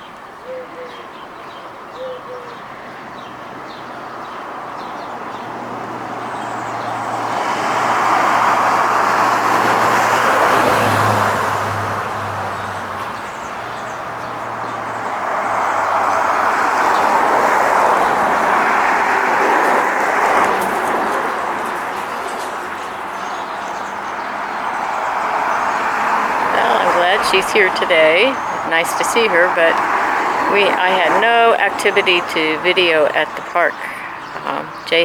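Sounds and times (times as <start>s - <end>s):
road vehicles passing: 0.0s - 35.0s.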